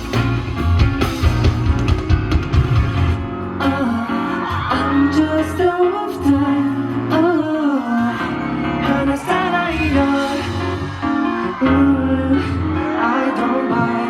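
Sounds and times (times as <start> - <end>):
pop dance track with vocals: 3.6 - 14.0.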